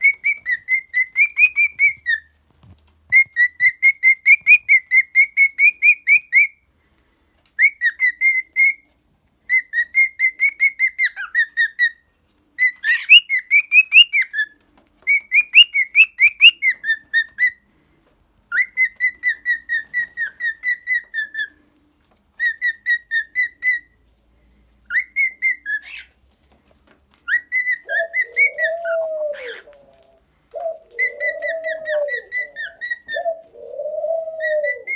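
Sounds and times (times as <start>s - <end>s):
cockatiel whistling: 0.0s - 2.3s, 3.1s - 6.6s, 7.6s - 8.8s, 9.5s - 12.0s, 12.6s - 14.5s, 15.1s - 17.6s, 18.5s - 21.5s, 22.4s - 24.0s, 24.9s - 26.1s, 27.3s - 29.8s, 31.0s - 33.4s, 34.4s - 34.9s.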